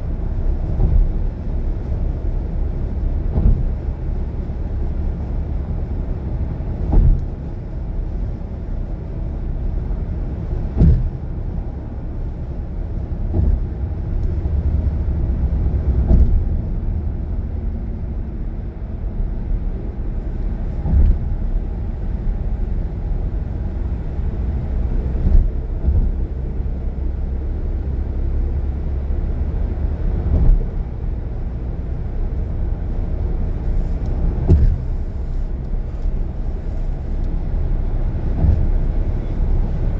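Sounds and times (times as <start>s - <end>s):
road and engine rumble: 0.0s - 39.9s
short thumps: 16.0s - 16.7s, 33.6s - 35.5s.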